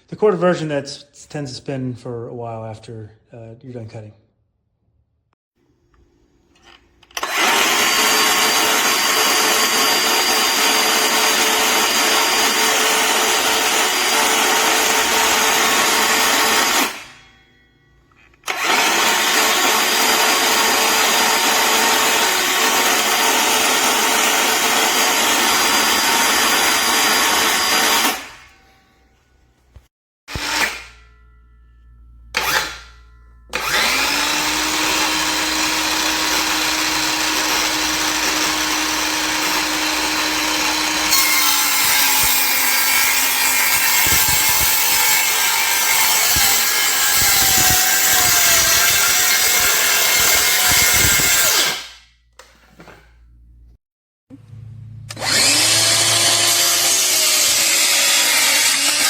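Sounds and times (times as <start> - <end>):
circular saw running and cutting: 7.2 - 17.2, 18.4 - 28.4, 33.5 - 51.9, 55.1 - 59.0.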